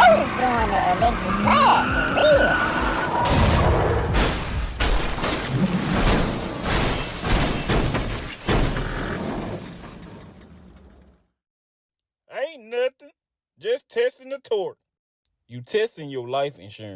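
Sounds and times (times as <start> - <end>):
crashing and banging impacts: 0.0 - 11.1.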